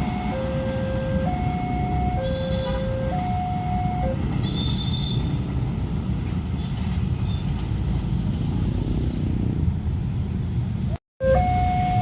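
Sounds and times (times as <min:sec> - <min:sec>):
two-pitch warning tone: 0:11.2 - 0:12.0.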